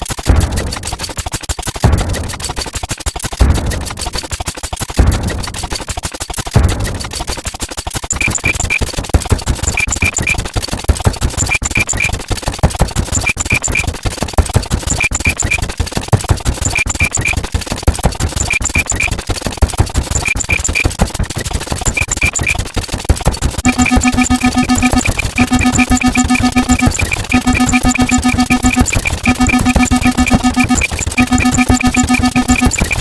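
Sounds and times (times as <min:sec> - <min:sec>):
dense noisy din of clicks: 0:00.0 - 0:33.0
short high beeps: 0:23.7 - 0:33.0.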